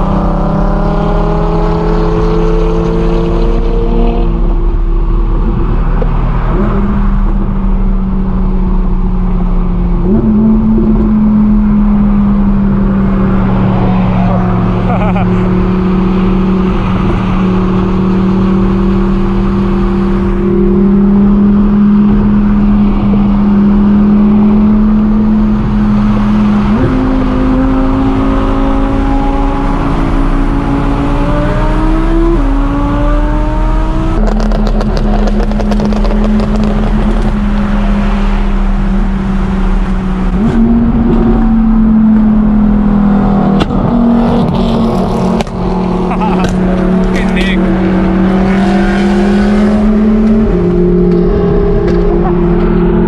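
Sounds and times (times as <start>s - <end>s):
car engine revving high: 0.0s - 53.0s.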